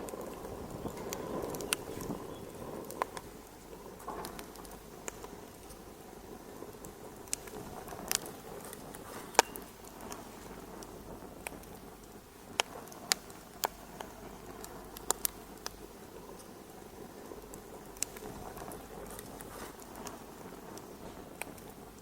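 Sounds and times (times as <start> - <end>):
fireplace fire crackling: 0.0 - 22.0
sharp pops of burning wood: 0.0 - 22.0.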